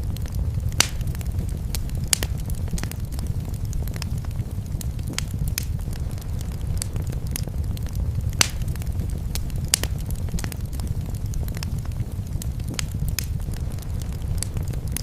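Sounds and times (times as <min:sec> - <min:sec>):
low fire rumble: 0:00.0 - 0:15.0
sharp pops and snaps: 0:00.0 - 0:15.0
wood fire crackling: 0:00.0 - 0:15.0.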